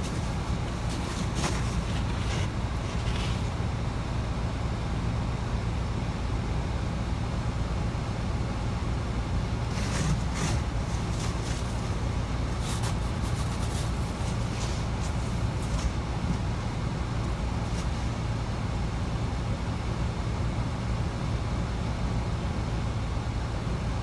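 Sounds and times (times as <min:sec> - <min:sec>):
brief rustles: 0:00.0 - 0:03.6, 0:09.7 - 0:18.2
car road and engine rumble: 0:00.0 - 0:24.0.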